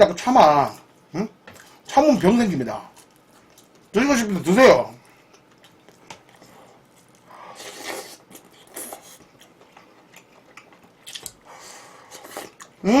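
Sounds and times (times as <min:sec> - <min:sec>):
person chewing: 0:02.9 - 0:04.0, 0:05.0 - 0:12.8
crackly mouth sounds: 0:05.0 - 0:11.5.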